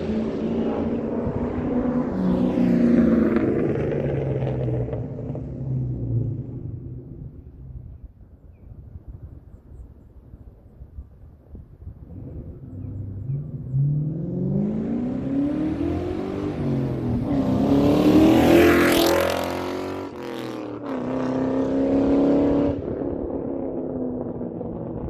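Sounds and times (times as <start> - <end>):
car engine revving: 0.0 - 7.7, 12.1 - 25.0.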